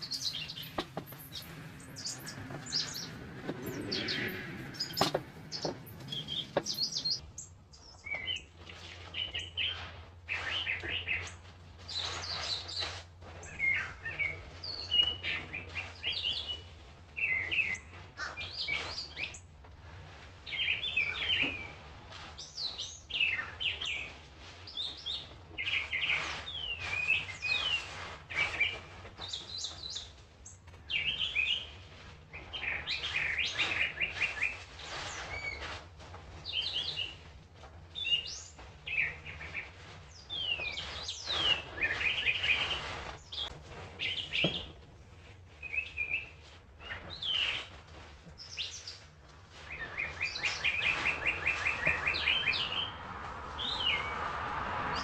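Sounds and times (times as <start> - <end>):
steady low hum: 0.0 - 7.4
wild birds chirping and singing: 0.0 - 19.4, 20.1 - 30.2, 30.9 - 35.8, 38.0 - 44.7, 48.4 - 54.2.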